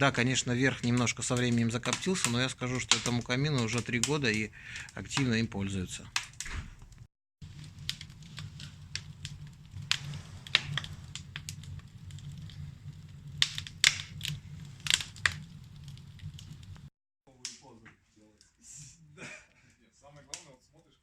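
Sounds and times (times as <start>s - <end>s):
wood fire crackling: 0.0s - 21.0s
low hum: 7.4s - 16.9s.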